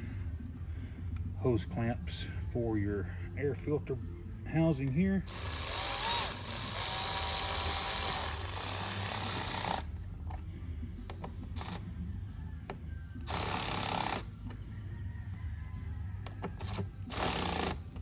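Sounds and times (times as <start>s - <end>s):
cordless power driver: 5.3s - 9.8s, 13.2s - 14.3s, 16.5s - 18.0s.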